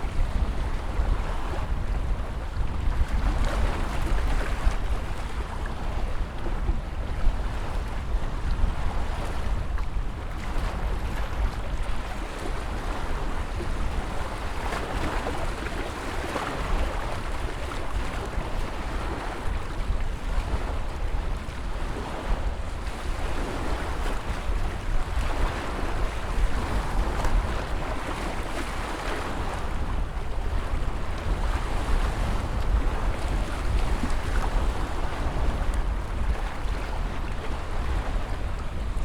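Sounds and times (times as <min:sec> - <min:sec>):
wind rumble on microphone: 0:00.0 - 0:39.0
ocean waves breaking: 0:10.4 - 0:39.0.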